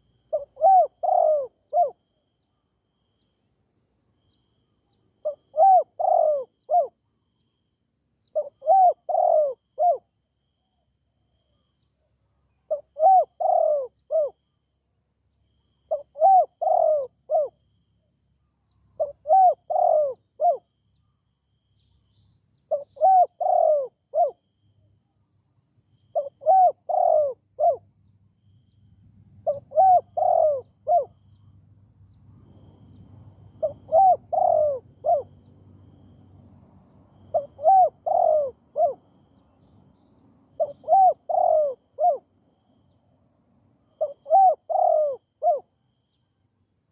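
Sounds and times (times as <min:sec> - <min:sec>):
dove cooing: 0:00.0 - 0:02.0, 0:05.2 - 0:07.0, 0:08.4 - 0:10.1, 0:12.7 - 0:14.4, 0:15.9 - 0:17.6, 0:19.0 - 0:20.7, 0:22.7 - 0:24.4, 0:26.1 - 0:27.8, 0:29.4 - 0:31.2, 0:33.5 - 0:35.4, 0:37.2 - 0:39.4, 0:40.6 - 0:42.3, 0:44.0 - 0:45.7.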